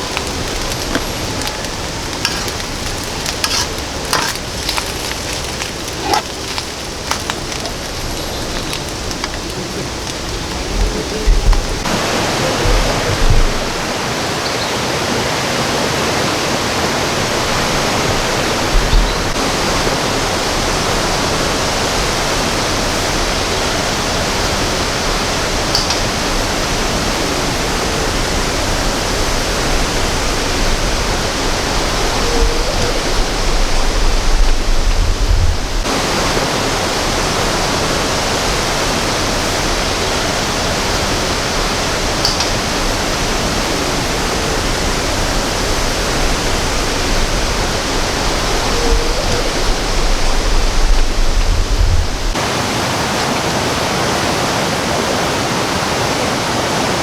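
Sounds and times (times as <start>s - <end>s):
heavy rain downpour: 0.0s - 57.0s
low thumps: 9.2s - 14.0s.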